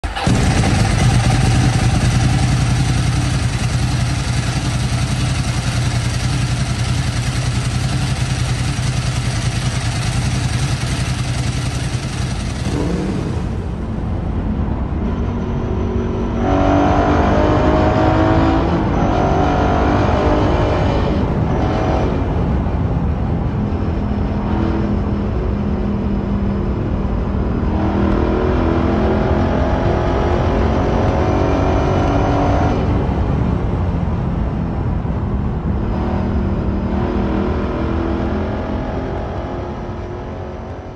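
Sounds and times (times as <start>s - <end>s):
motorcycle engine idling: 0.0s - 14.0s
motorcycle engine accelerating: 0.0s - 40.9s.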